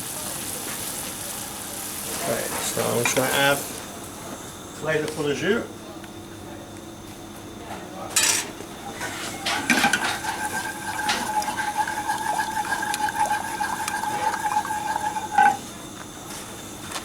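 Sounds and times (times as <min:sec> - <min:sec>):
sauce bubbling: 0:09.1 - 0:15.8
utensil clinking on pan: 0:09.2 - 0:15.7
steady high whine: 0:09.2 - 0:16.1.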